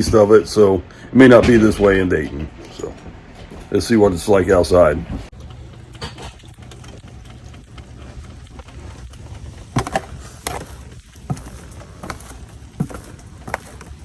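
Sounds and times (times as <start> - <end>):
steady low hum: 0.0 - 14.0
footsteps crunching on ice: 7.7 - 14.0.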